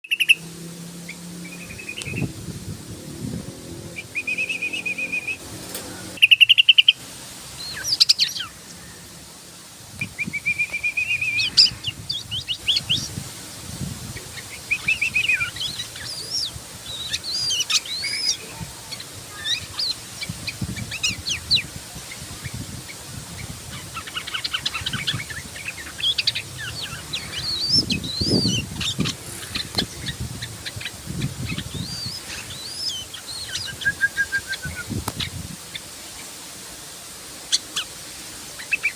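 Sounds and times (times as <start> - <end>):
bird chirping: 0.0 - 2.4, 3.9 - 5.4, 6.2 - 7.0, 10.0 - 13.2, 14.2 - 22.6, 23.3 - 35.9.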